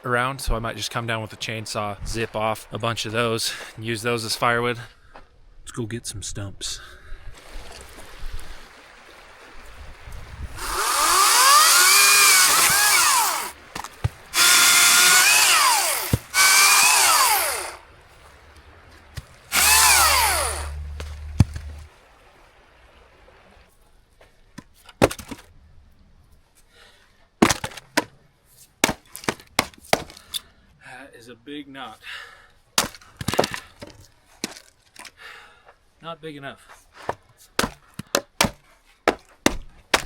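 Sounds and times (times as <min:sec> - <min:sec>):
chainsaw cutting wood: 0:10.6 - 0:17.8, 0:19.4 - 0:21.8
sharp knocks: 0:37.6 - 0:40.0.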